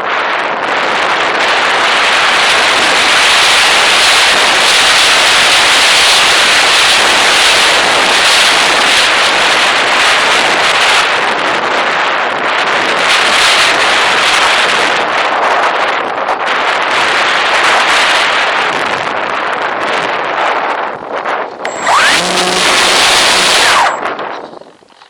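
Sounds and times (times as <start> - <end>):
air rushing over microphone: 16.4 - 24.4.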